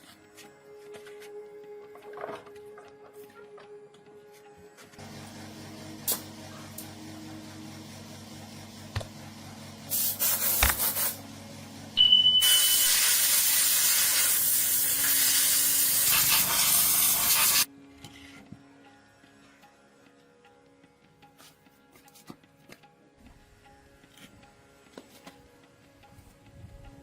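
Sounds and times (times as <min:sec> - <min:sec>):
steady mechanical hum: 0:04.7 - 0:12.4
loud spraying hiss: 0:09.9 - 0:11.2, 0:12.7 - 0:17.7.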